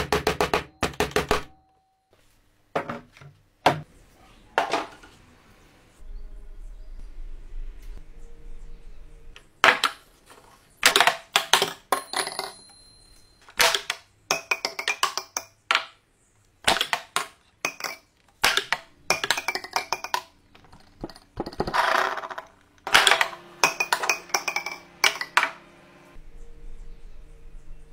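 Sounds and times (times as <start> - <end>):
steel ball knocking wooden pins: 10.8 - 12.7, 13.5 - 16.0, 16.6 - 25.6.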